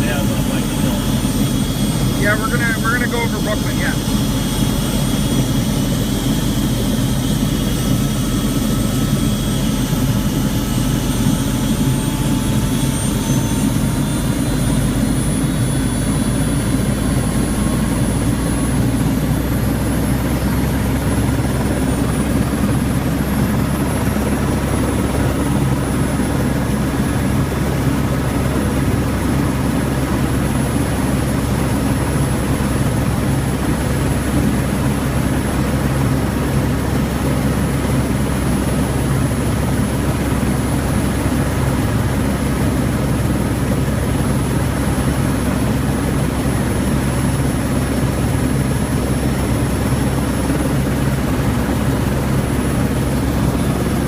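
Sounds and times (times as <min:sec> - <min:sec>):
helicopter rotor and engine: 0:00.0 - 0:54.0.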